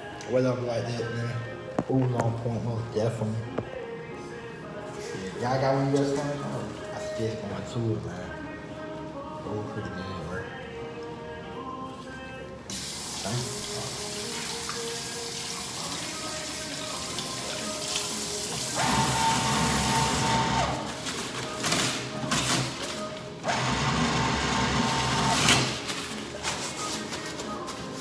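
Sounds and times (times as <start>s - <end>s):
faint background music: 0.0s - 28.0s
water running from sink tap: 12.7s - 19.8s.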